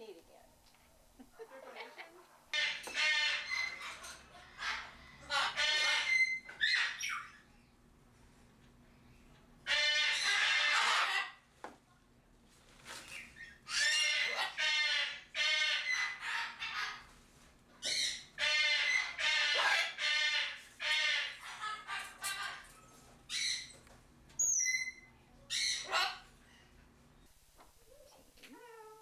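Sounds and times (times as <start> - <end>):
cockatoo squawking: 2.5 - 7.4, 9.7 - 11.4, 13.4 - 17.1, 17.8 - 22.7, 24.4 - 26.3.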